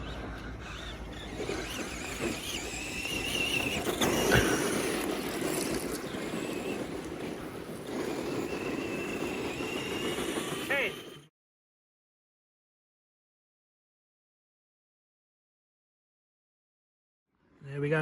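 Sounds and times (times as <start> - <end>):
electric motor whine: 0.0 - 11.3
rough noise: 1.0 - 11.3.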